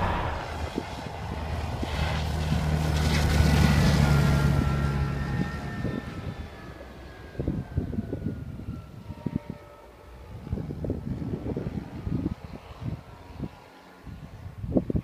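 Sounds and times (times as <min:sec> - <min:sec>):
diesel engine drone: 0:00.0 - 0:08.7.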